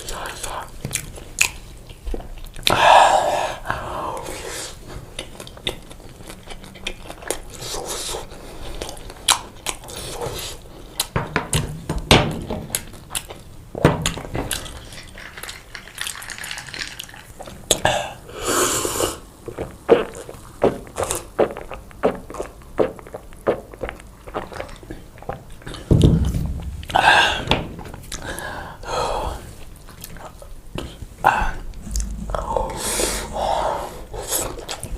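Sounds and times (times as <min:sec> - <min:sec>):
chewing pizza: 0:00.0 - 0:02.8, 0:04.1 - 0:11.2, 0:12.6 - 0:18.0, 0:19.4 - 0:25.9, 0:29.5 - 0:33.5, 0:34.1 - 0:34.9.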